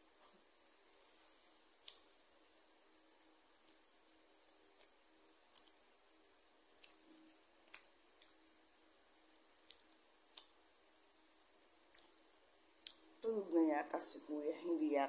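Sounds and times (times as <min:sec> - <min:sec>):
faint steady hum: 0:00.0 - 0:15.0
mouth clicks and lip smacks chewing: 0:01.8 - 0:02.2, 0:02.9 - 0:05.8, 0:06.7 - 0:08.5, 0:09.6 - 0:10.6, 0:11.9 - 0:12.2, 0:12.8 - 0:13.3.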